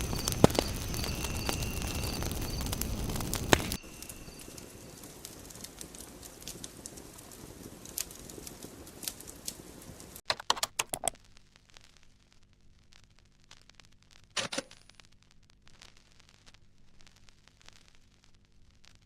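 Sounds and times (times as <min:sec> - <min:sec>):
fire crackling: 0:00.0 - 0:14.3, 0:15.0 - 0:19.0
clicks: 0:10.3 - 0:11.2.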